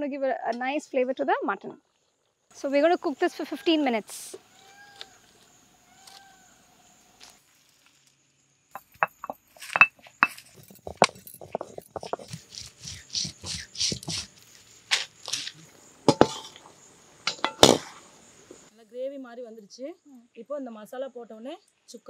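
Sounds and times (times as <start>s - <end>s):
sharp clinks and knocks: 8.8s - 12.6s, 14.9s - 18.6s
stone grinding paste: 8.8s - 14.4s
metal ladle clinking on pan: 16.1s - 16.6s.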